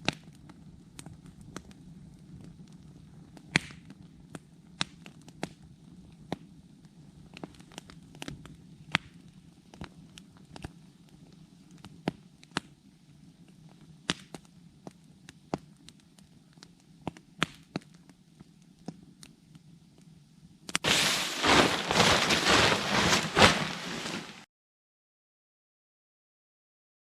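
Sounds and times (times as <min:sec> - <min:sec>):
campfire crackling and popping: 0:00.0 - 0:24.4
loud dense rustling crackle: 0:20.8 - 0:24.5.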